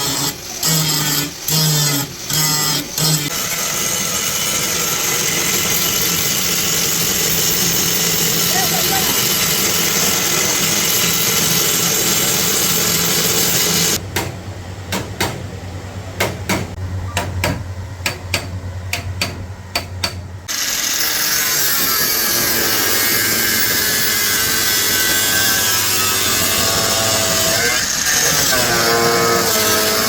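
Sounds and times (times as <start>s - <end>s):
power tool on steel: 0.0s - 14.0s, 20.4s - 30.0s
hammer tapping metal: 16.2s - 20.2s.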